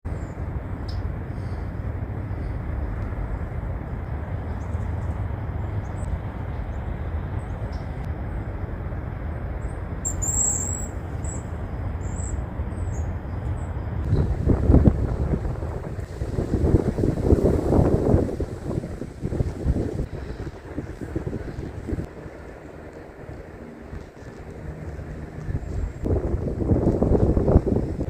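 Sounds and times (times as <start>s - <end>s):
steady low rumble: 0.0s - 28.0s
high thin bird calls: 10.0s - 13.1s.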